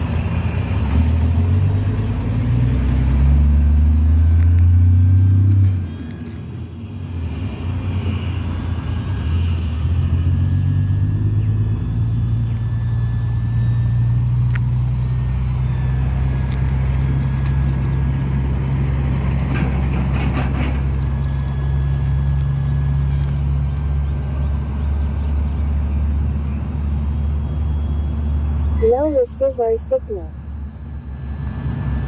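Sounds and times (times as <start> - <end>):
crackle: 5.5 - 6.7
model plane engine running: 6.4 - 19.3.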